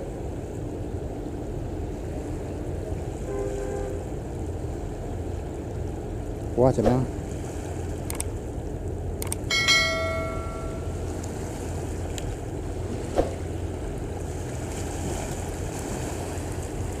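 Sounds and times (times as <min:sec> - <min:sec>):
ship engine drone: 0:00.0 - 0:17.0
water noise: 0:00.0 - 0:17.0
wind: 0:00.0 - 0:17.0
metallic bell ring: 0:09.5 - 0:11.0.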